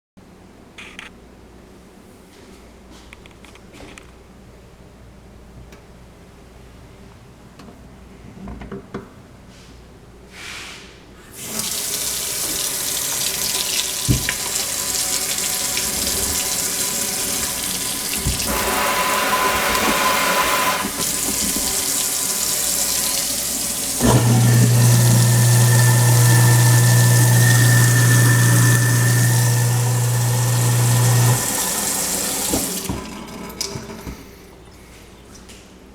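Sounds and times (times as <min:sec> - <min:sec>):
garbage disposal humming: 0:11.2 - 0:35.4
faucet water running into sink: 0:11.4 - 0:34.3.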